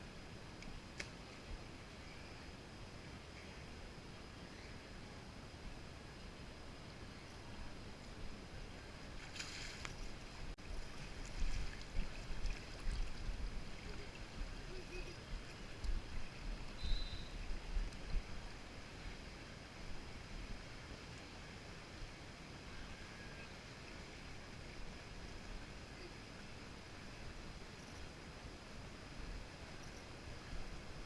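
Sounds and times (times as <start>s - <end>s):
water lapping and splashing: 9.1s - 16.4s.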